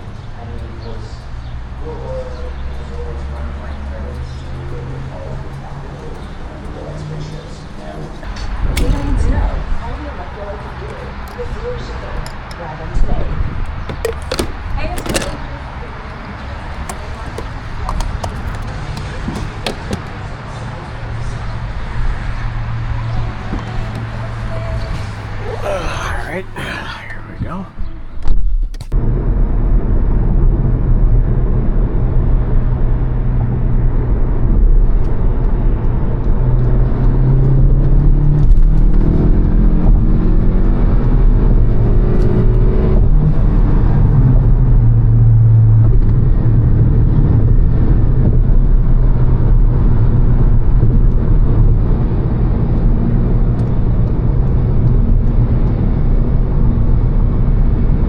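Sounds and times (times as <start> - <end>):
car engine accelerating: 0.0 - 26.3, 27.3 - 58.0
road rumble: 0.0 - 58.0.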